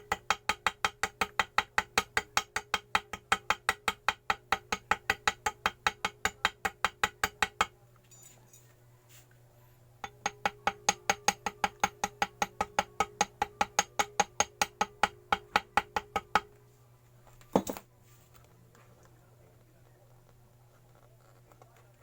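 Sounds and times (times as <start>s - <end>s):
small hammer tapping on metal: 0.0s - 7.8s, 10.0s - 16.6s.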